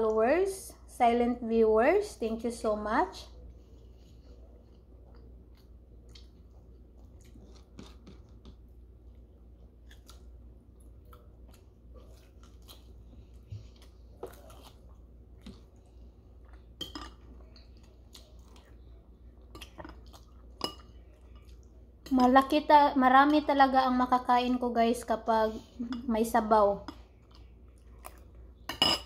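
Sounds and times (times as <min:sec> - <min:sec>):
low steady hum: 0:00.0 - 0:29.0
wet mouth chewing sounds: 0:04.4 - 0:20.6.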